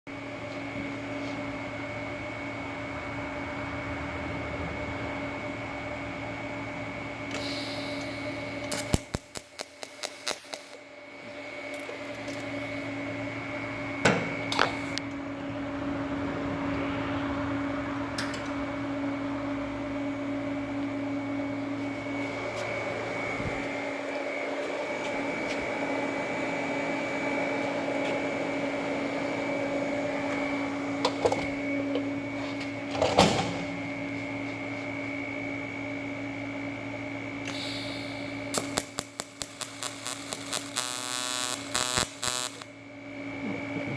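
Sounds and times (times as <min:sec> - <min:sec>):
welder humming: 0:06.6 - 0:15.2, 0:35.7 - 0:43.9
welder hiss: 0:07.4 - 0:10.8, 0:37.4 - 0:42.6.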